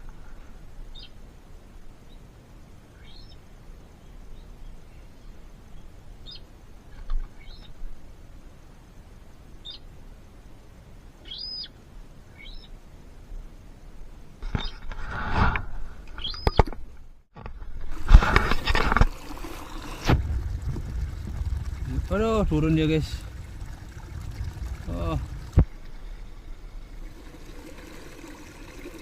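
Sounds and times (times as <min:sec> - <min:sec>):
small birds chirping: 0:00.9 - 0:01.2, 0:02.9 - 0:07.8, 0:09.6 - 0:09.9, 0:11.2 - 0:12.8, 0:16.2 - 0:16.7
low bump: 0:19.8 - 0:27.1.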